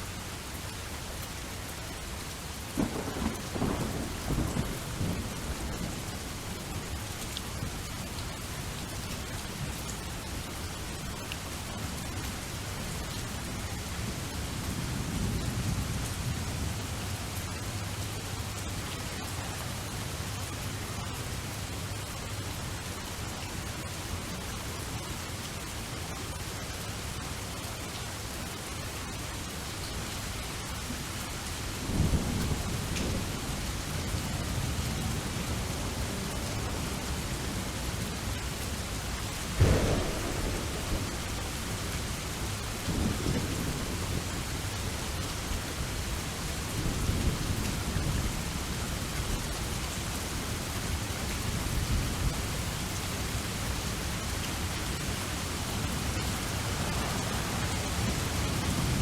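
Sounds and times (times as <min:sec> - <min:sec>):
steady rain: 0:00.0 - 0:59.0
loud thunderclap: 0:02.8 - 0:06.0, 0:39.5 - 0:44.3
thunder rumbling: 0:02.8 - 0:07.8, 0:39.3 - 0:45.2.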